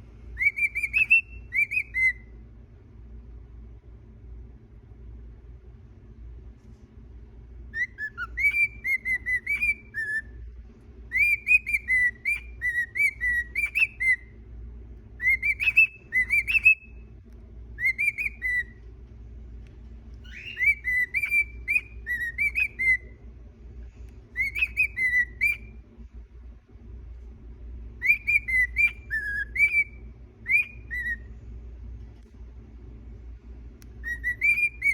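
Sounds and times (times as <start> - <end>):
low hum: 0.0 - 34.9
cockatiel whistling: 0.3 - 2.3, 7.7 - 10.5, 11.1 - 14.4, 15.2 - 17.1, 17.7 - 18.8, 20.2 - 23.2, 24.2 - 25.8, 28.0 - 31.3, 33.8 - 34.9.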